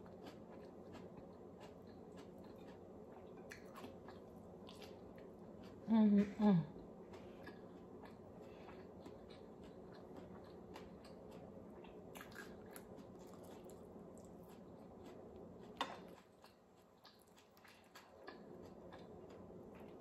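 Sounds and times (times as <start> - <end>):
person chewing food: 0.0 - 5.9, 6.8 - 20.0.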